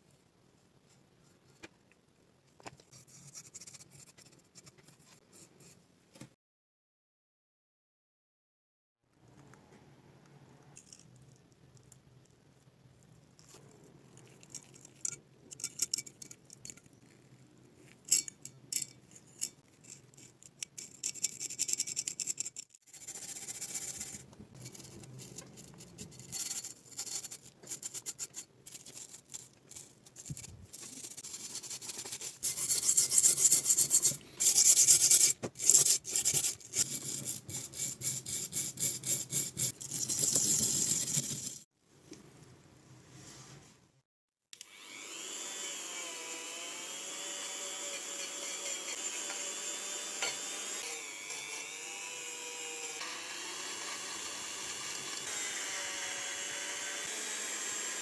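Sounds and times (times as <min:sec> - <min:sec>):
scraping strokes on metal: 0:47.6 - 0:51.6.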